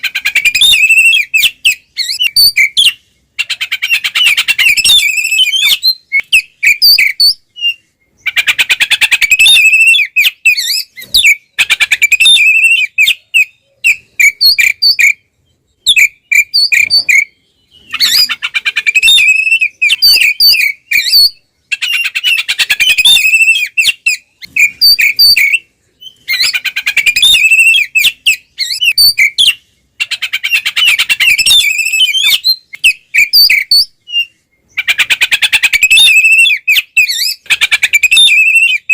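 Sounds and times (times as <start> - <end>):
bird singing whistles and harsh notes: 0.0 - 38.9.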